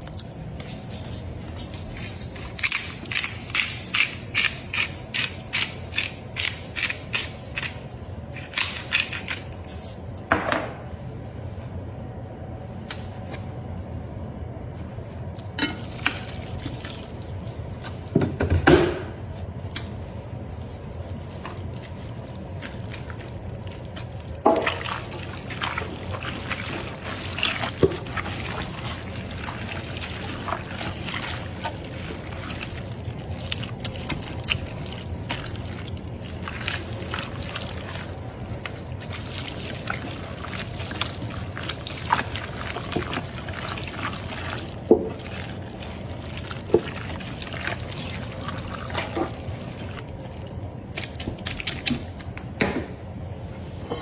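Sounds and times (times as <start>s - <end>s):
liquid pouring and trickling: 21.2s - 51.7s.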